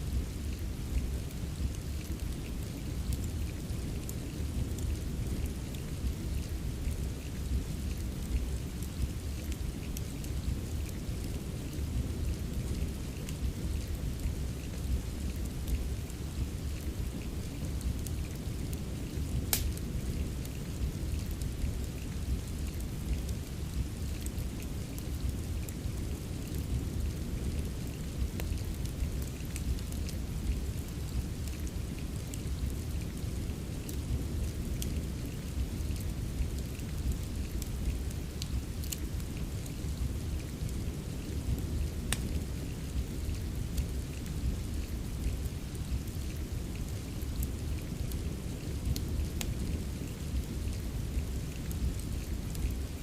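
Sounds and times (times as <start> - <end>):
steady rain: 0.0 - 53.0
wood fire crackling: 0.0 - 53.0
sharp fire pop: 19.5 - 19.8.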